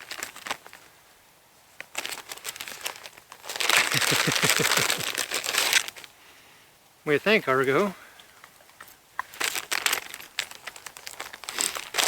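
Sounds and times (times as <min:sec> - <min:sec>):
plastic crinkling: 0:00.0 - 0:00.9, 0:01.8 - 0:06.1, 0:09.2 - 0:12.0.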